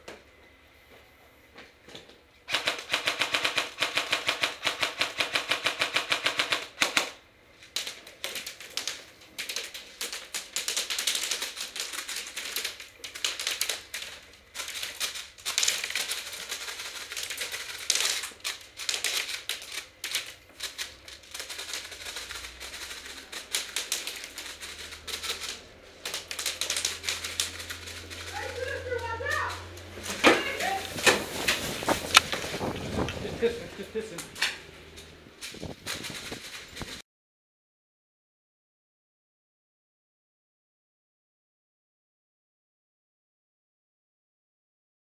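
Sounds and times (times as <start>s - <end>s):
airsoft guns firing: 2.5s - 7.2s.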